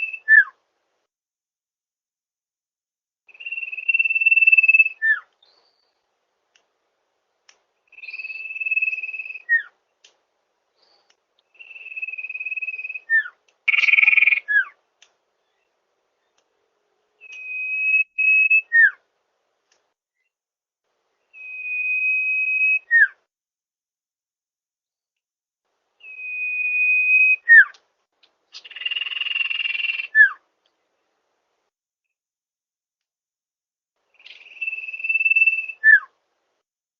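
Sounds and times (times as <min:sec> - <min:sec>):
bird whistling song: 0:00.0 - 0:00.6, 0:03.3 - 0:06.0, 0:07.9 - 0:09.8, 0:10.8 - 0:14.8, 0:17.2 - 0:19.0, 0:21.2 - 0:23.2, 0:26.0 - 0:27.8, 0:28.5 - 0:30.4, 0:34.1 - 0:36.2.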